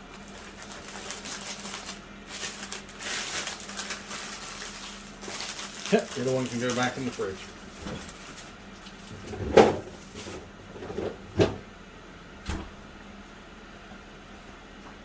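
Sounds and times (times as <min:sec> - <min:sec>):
fridge door opening and shutting: 0:07.7 - 0:08.2, 0:09.1 - 0:11.7, 0:12.4 - 0:12.8.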